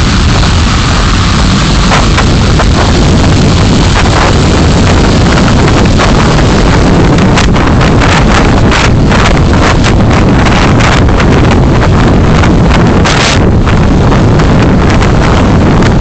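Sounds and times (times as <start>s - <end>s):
road and wind noise: 0.0s - 16.0s.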